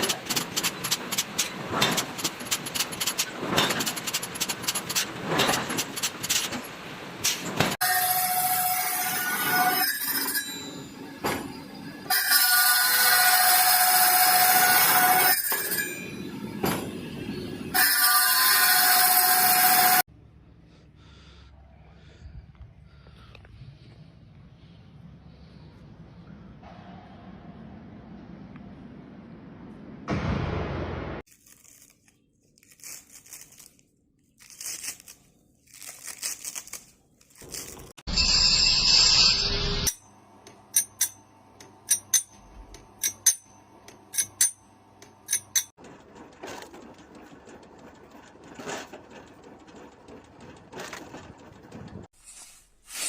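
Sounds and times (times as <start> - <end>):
crinkling and tearing: 31.3 - 38.0.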